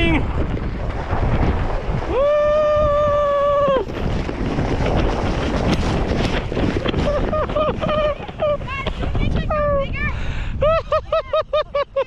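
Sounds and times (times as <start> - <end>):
wind buffeting microphone: 0.0 - 12.0
person yelling: 2.1 - 3.8.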